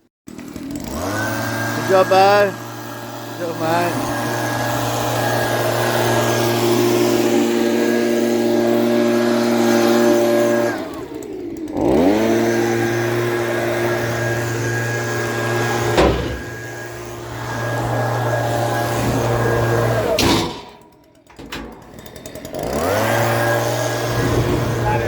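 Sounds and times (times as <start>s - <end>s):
engine running: 0.5s - 25.0s
sharp knock: 16.0s - 16.6s.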